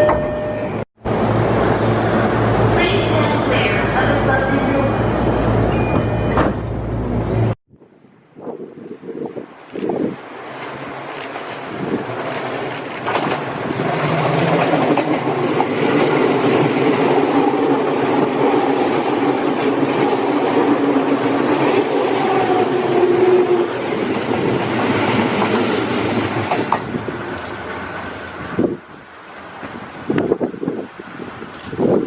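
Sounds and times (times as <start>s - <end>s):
electric train rumbling on rails: 0.0s - 32.0s.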